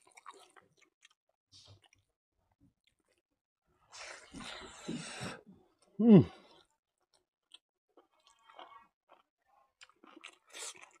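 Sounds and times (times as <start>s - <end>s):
noisy chewing: 0.0s - 2.1s, 6.5s - 11.0s.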